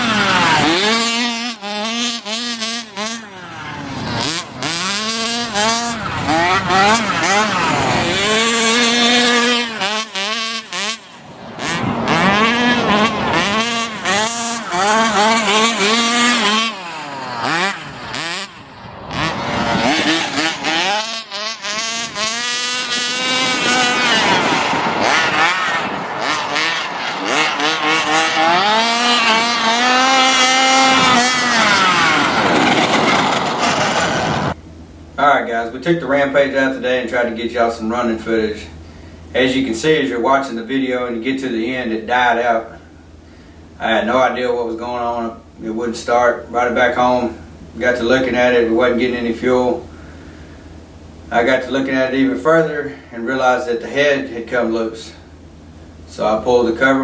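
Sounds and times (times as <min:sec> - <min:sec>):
small two-stroke engine revving: 0:00.0 - 0:34.6.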